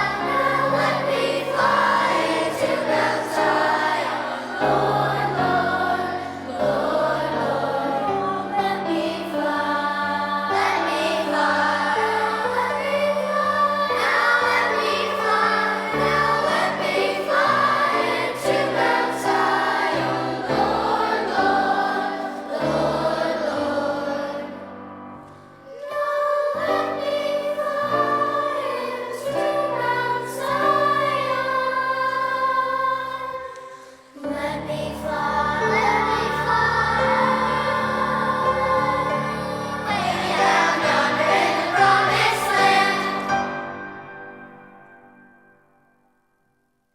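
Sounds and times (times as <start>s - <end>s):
children's choir singing: 0.0s - 45.5s.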